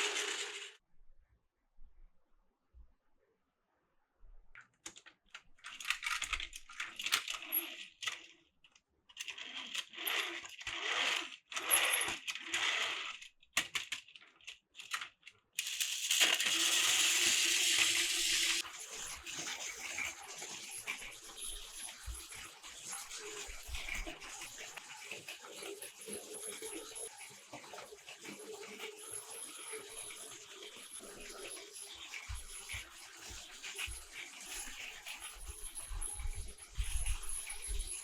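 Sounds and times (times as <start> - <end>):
plastic toy pieces clattering: 0.0 - 0.8, 9.2 - 22.1.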